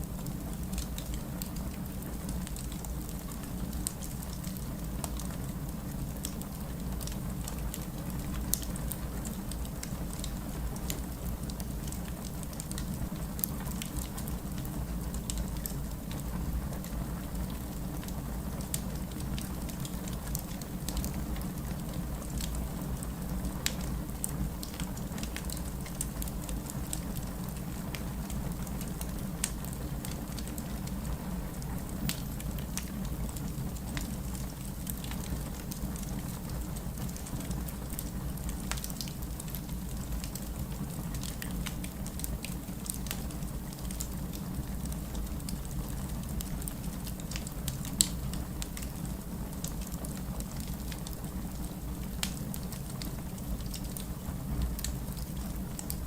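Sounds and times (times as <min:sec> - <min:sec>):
steady rain: 0:00.0 - 0:56.0
wood fire crackling: 0:00.0 - 0:56.0.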